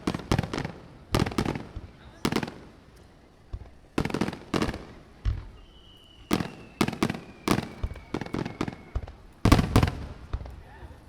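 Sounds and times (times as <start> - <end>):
fireworks bangs: 0.0 - 11.0
high whistle falling in pitch: 5.5 - 9.1.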